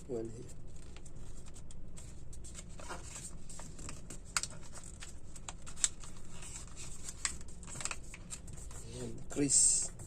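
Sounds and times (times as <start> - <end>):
paper crinkling: 0.4 - 9.1
sharp paper clicks: 0.7 - 9.1.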